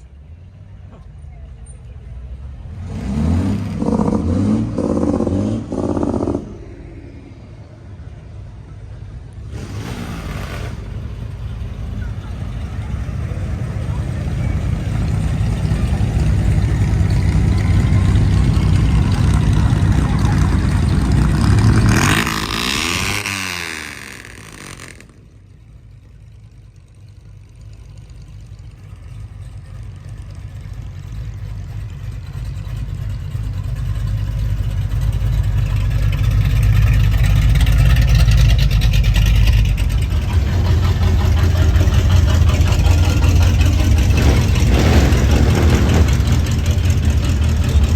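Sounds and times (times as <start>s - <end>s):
vehicle engines running: 0.0s - 47.9s
loud vehicle passing: 2.6s - 25.3s, 38.6s - 47.9s.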